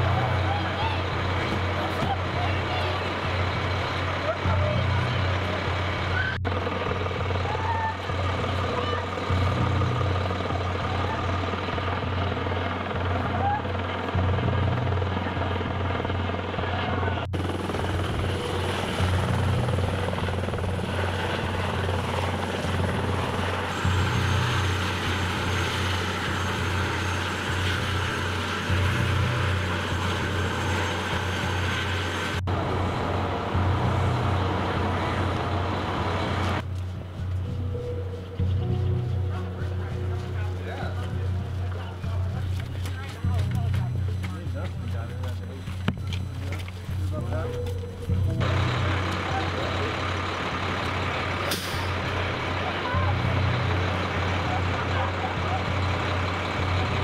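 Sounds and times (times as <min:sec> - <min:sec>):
heavy truck engine idling: 0:00.0 - 0:57.0.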